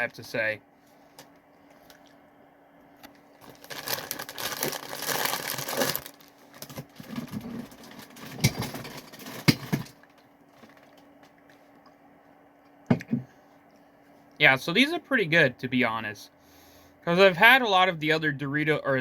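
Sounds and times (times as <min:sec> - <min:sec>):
scattered crackles: 0:03.4 - 0:07.1
foil snack bag crinkling: 0:03.4 - 0:08.2.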